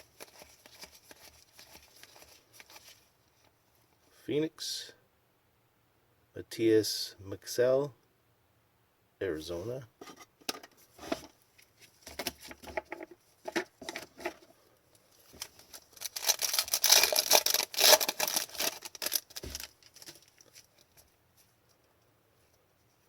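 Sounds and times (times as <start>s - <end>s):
packaging crinkling: 0.0s - 3.1s, 15.2s - 21.0s.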